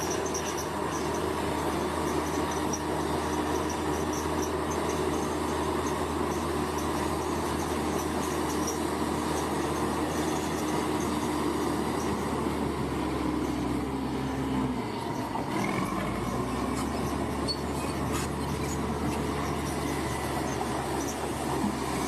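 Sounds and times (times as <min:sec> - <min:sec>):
diesel engine running under load: 0:00.0 - 0:22.0
steel tracks squealing and clanking: 0:00.0 - 0:22.0.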